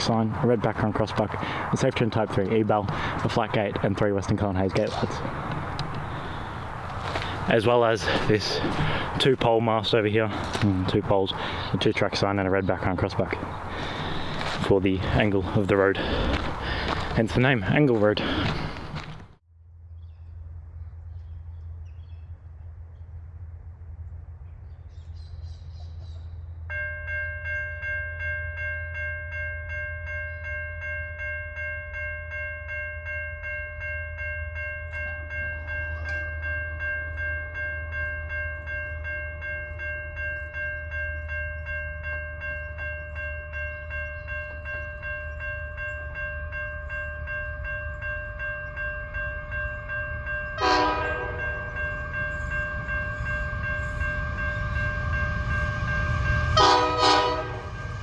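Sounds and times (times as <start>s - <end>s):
level crossing bells ringing: 0.0s - 19.1s, 26.7s - 58.0s
train horn blast: 50.6s - 51.7s, 55.4s - 57.9s.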